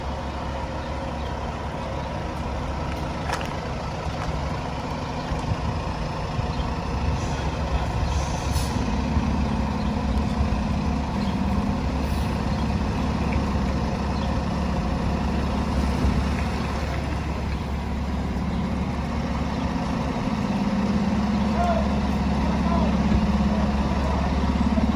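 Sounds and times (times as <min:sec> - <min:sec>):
diesel truck engine idling: 0:00.0 - 0:24.9
air brake hisses: 0:07.2 - 0:08.9.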